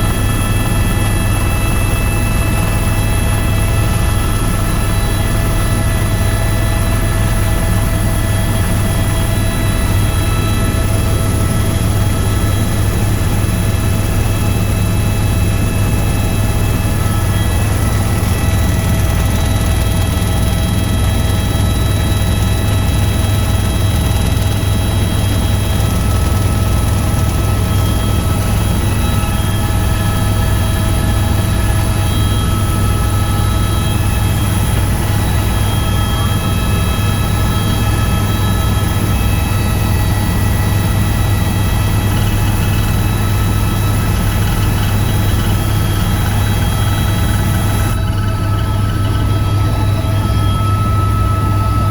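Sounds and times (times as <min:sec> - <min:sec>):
helicopter rotor and engine drone: 0:00.0 - 0:51.9.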